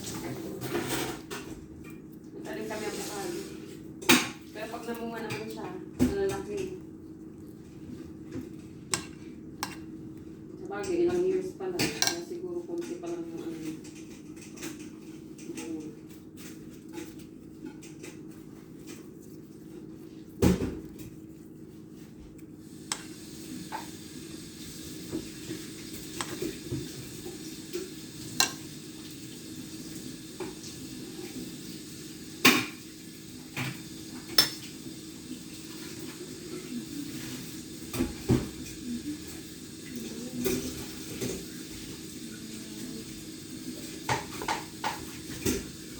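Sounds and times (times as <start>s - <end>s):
steady low hum: 3.6s - 29.0s
dishes and utensils clinking: 10.8s - 15.8s, 33.6s - 34.7s.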